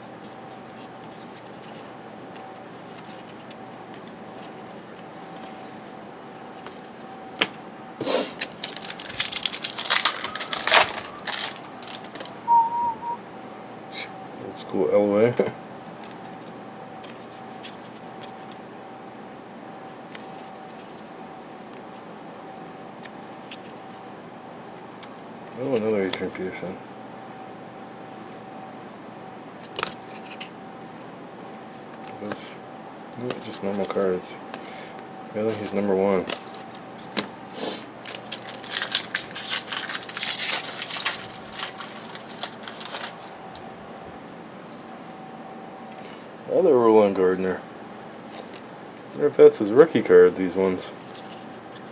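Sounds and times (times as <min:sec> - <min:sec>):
faint steady hum: 0:00.0 - 0:51.9
cards clicking and rubbing: 0:00.2 - 0:13.2, 0:35.5 - 0:43.4
foil wrapper crinkling: 0:08.3 - 0:12.5, 0:38.0 - 0:43.7.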